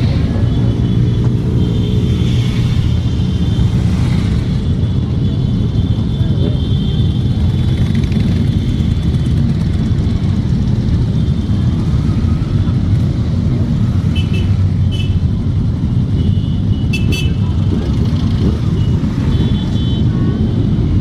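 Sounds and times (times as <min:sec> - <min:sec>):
motorcycle engines rumbling: 0:00.0 - 0:21.0.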